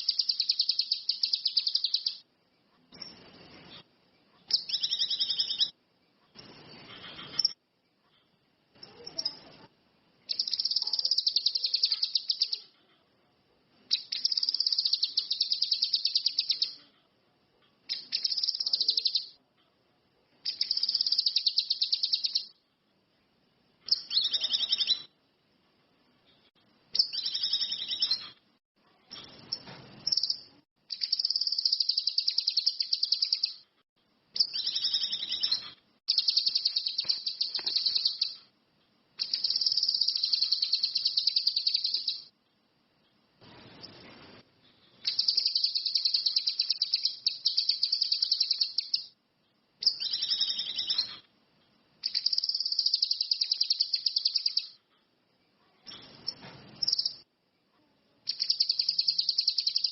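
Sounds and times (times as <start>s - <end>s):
bird singing high trill: 0.0s - 2.2s, 4.6s - 5.8s, 10.3s - 12.7s, 13.9s - 16.8s, 17.9s - 19.4s, 20.5s - 22.6s, 23.9s - 25.1s, 27.0s - 28.4s, 29.2s - 33.6s, 34.4s - 38.5s, 39.2s - 42.3s, 45.0s - 49.2s, 49.8s - 51.2s, 52.0s - 54.8s, 58.3s - 59.9s.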